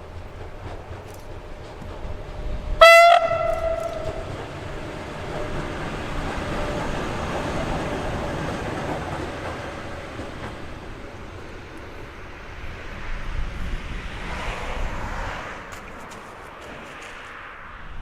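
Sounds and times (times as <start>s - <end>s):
passing train rumble: 0.0s - 18.0s
train horn blast: 2.8s - 4.6s.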